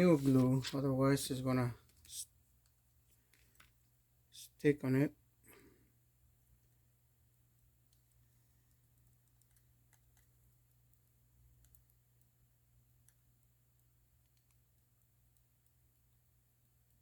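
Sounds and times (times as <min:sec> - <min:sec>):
faint small clicks: 0:07.9 - 0:10.4, 0:11.6 - 0:12.3, 0:13.0 - 0:15.8.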